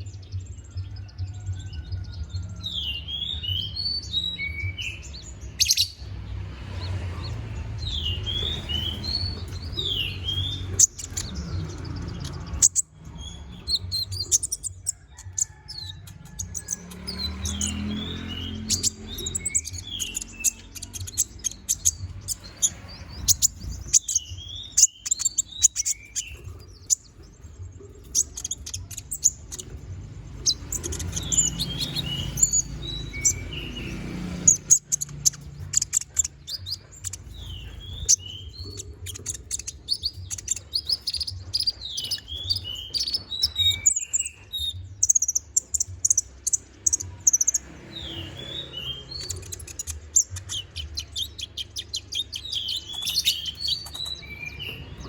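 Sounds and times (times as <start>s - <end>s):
small bird singing rapid chirps: 0.0s - 55.0s.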